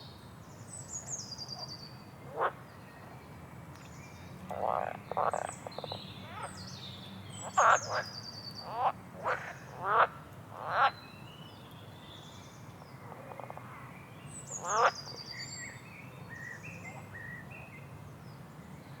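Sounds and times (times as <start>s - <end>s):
frogs croaking: 2.2s - 2.6s, 4.5s - 6.6s, 7.4s - 11.0s, 13.0s - 13.9s, 14.5s - 15.1s.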